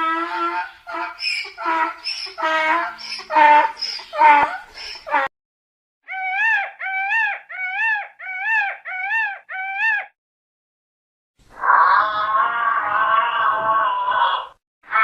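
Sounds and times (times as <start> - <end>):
animal high-pitched call: 0.2 - 5.3, 6.1 - 10.2.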